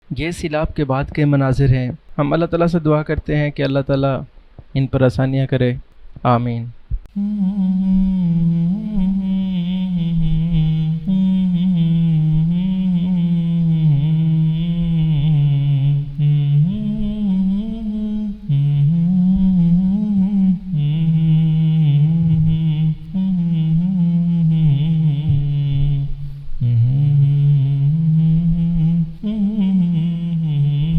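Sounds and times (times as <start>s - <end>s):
low voice humming: 7.1s - 30.9s.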